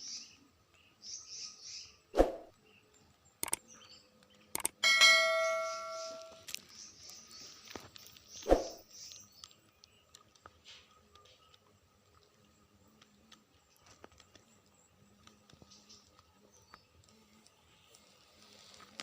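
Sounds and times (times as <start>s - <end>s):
faint high chirping: 0.0s - 18.2s
sharp clicks: 3.4s - 3.6s, 4.5s - 4.8s
metallic bell-like ring: 4.8s - 6.4s.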